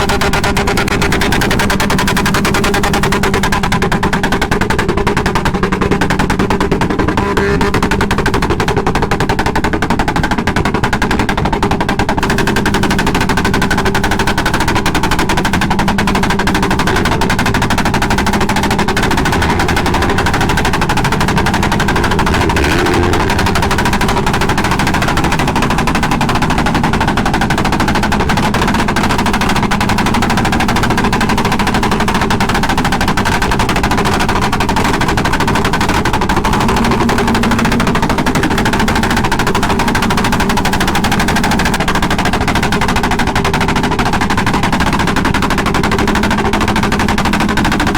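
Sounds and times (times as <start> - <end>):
motorcycle engine rapid rattle: 0.0 - 47.9.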